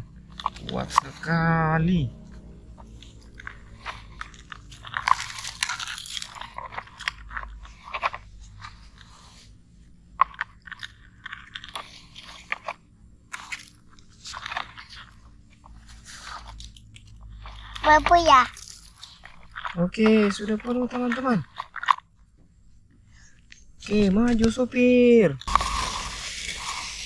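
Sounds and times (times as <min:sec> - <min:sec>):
sand crunching and scraping: 0:23.8 - 0:27.0.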